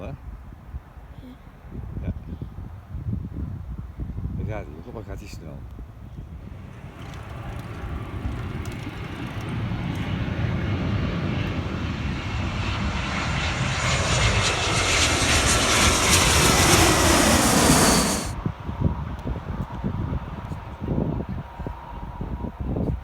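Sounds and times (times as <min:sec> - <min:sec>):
airplane engines roaring: 0:06.1 - 0:18.5.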